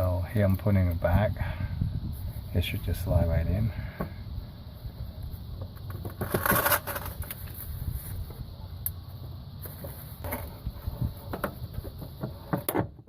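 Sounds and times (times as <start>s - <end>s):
hose scraping rustle: 5.3s - 8.5s.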